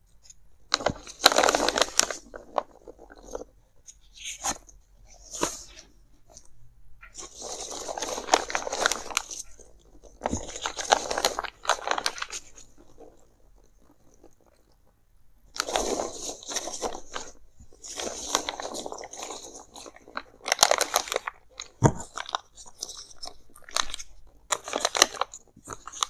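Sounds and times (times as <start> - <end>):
packaging crinkling and scratching: 0.7 - 4.6, 7.1 - 14.8, 15.6 - 26.0.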